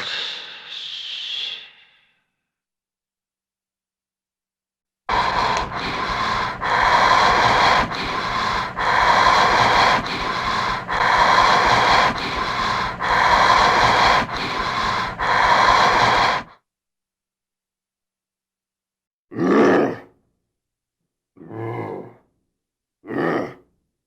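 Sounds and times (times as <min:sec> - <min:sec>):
faint low hum: 0:05.1 - 0:16.4
heavy rasping breathing: 0:05.1 - 0:16.6.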